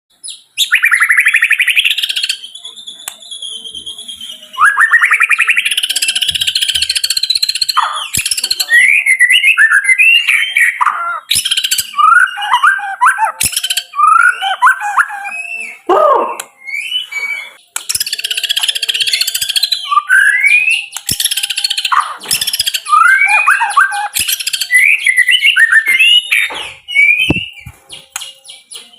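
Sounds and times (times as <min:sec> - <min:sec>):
songbird singing varied song: 0:00.2 - 0:28.9.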